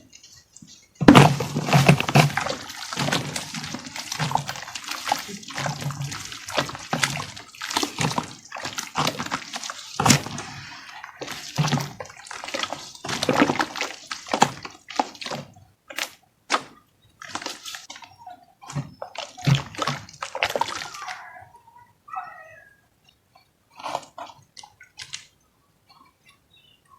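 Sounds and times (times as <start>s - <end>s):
sloshing squelches: 0.0s - 22.6s
wet chunks crunching: 0.1s - 21.4s.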